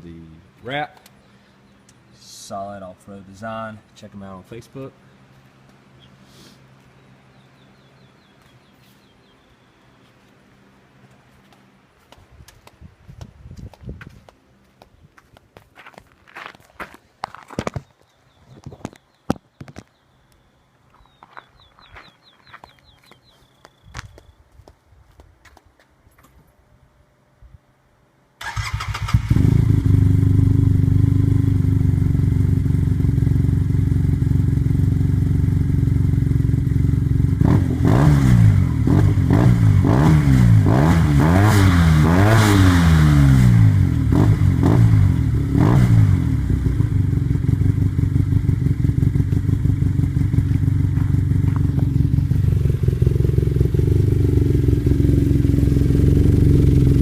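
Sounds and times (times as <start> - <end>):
engine starting up: 28.4 - 30.0
engine revving: 28.4 - 57.0
engine idling: 46.8 - 57.0.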